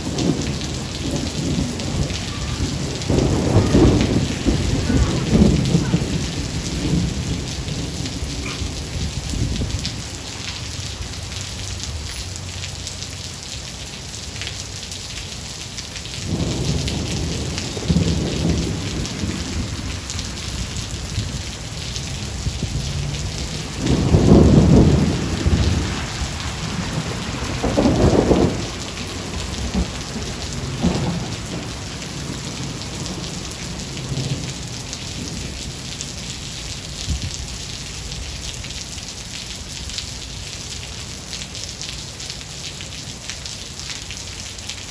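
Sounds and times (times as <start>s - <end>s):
thunder rumbling: 0.0s - 12.5s, 16.0s - 38.9s
heavy rain: 0.0s - 44.9s.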